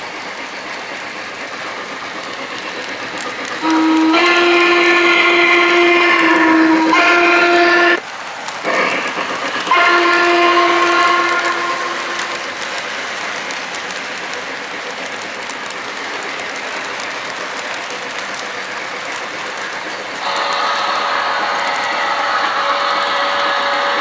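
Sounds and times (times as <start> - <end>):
model train running on track: 0.0 - 24.0
model train steam whistle: 3.4 - 8.0, 8.7 - 12.7, 19.2 - 24.0.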